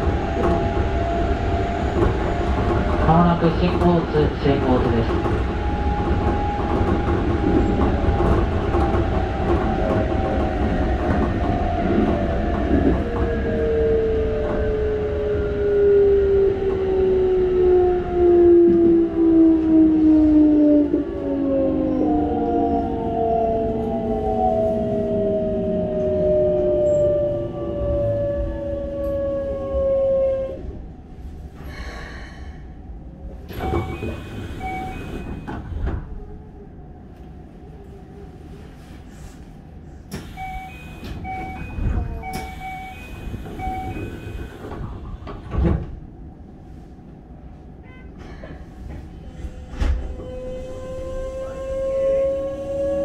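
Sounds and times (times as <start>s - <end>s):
train inverter whine: 0.0s - 32.0s, 32.9s - 37.4s, 39.8s - 47.7s
short electronic beeps: 40.4s - 44.3s.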